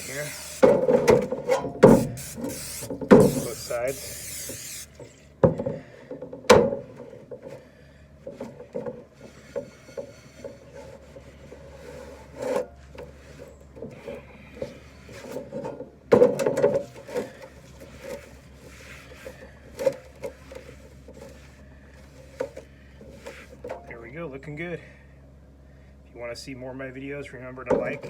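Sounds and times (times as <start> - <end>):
cast iron pan rubbing and knocking: 0.0 - 4.0.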